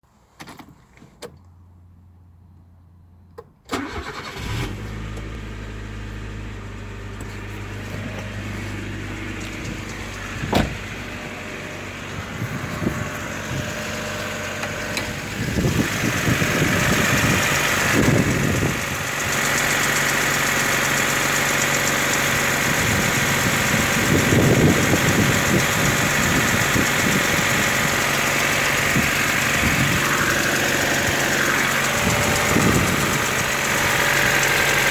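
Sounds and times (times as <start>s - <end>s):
car engine starting and idling: 3.3s - 34.9s
engine knocking: 14.5s - 34.9s.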